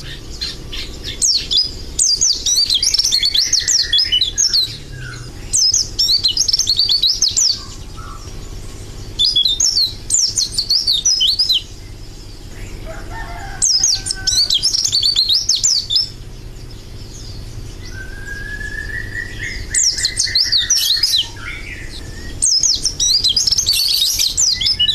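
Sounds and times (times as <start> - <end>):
bird twittering song: 0.0 - 24.9
steady low hum: 0.0 - 24.9
rising whistle: 17.9 - 24.9.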